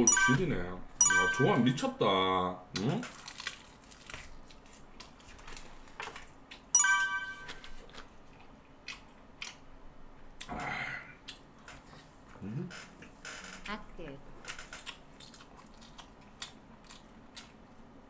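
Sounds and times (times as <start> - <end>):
short bright ringing tone: 0.0 - 1.8, 6.8 - 7.8
person chewing food: 7.5 - 9.7, 14.7 - 17.8.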